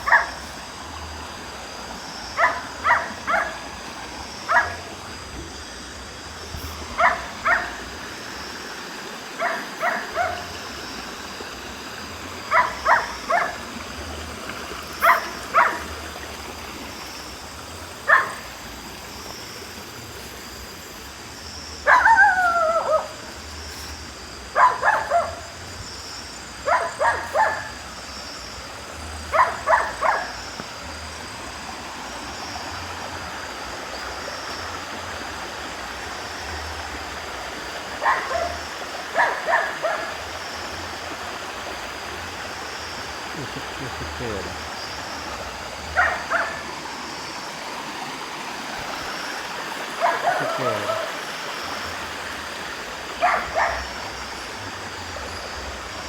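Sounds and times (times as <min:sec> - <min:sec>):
barking: 0:00.0 - 0:00.5, 0:02.4 - 0:03.7, 0:04.4 - 0:04.9, 0:06.9 - 0:07.9, 0:09.4 - 0:10.6, 0:12.5 - 0:13.7, 0:15.0 - 0:16.0, 0:18.0 - 0:18.5, 0:21.8 - 0:23.2, 0:24.5 - 0:25.6, 0:26.6 - 0:27.8, 0:29.3 - 0:30.4, 0:38.0 - 0:40.4, 0:45.9 - 0:46.7, 0:49.9 - 0:51.3, 0:53.2 - 0:54.0
steady hiss: 0:00.0 - 0:56.0.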